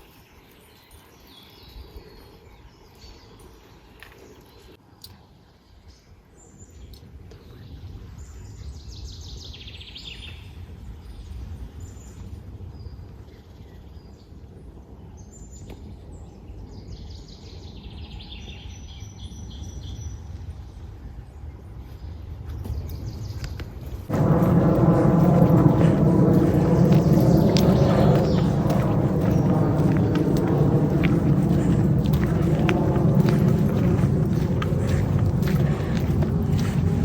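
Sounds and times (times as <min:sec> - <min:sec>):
low steady rumble: 0:24.1 - 0:37.0
songbirds trilling: 0:24.1 - 0:37.0.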